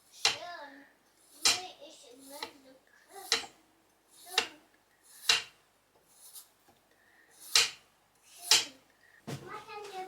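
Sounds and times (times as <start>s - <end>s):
knife scraping through vegetables: 4.1s - 6.6s
knife striking cutting board: 5.2s - 5.6s, 7.5s - 7.8s.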